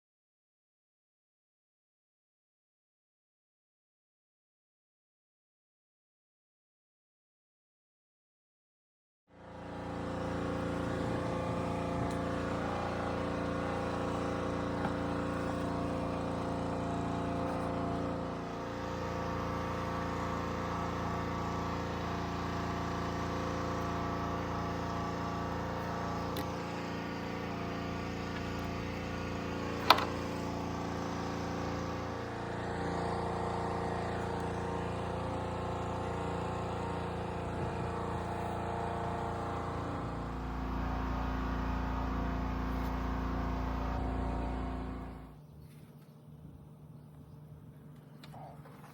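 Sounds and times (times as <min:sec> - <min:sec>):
engine idling: 0:09.4 - 0:45.8.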